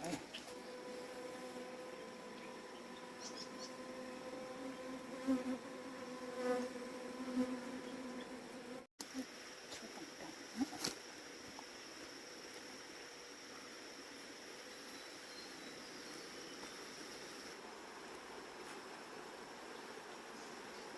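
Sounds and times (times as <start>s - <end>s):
thin high insect tone: 0.0s - 4.1s, 9.0s - 20.9s
bees buzzing: 0.2s - 9.2s.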